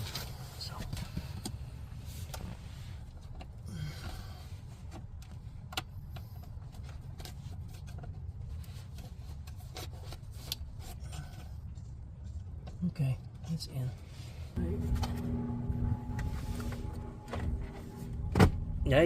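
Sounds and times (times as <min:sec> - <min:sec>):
low hum: 0:14.4 - 0:19.0.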